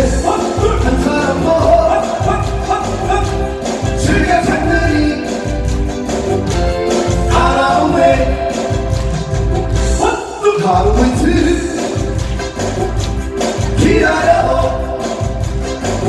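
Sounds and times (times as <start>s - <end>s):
men singing: 0.0s - 12.2s, 12.8s - 16.0s
backing track with strong bass: 0.0s - 16.0s.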